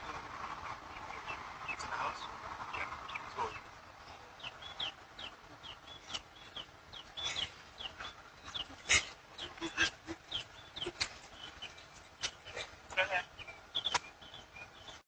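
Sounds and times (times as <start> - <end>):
high bird chirps: 4.4 - 15.0.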